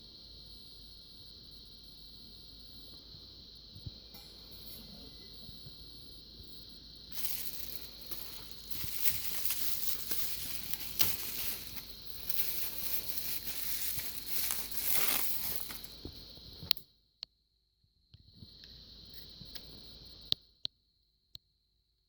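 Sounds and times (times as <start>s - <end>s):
packaging crinkling and tearing: 7.2s - 16.0s.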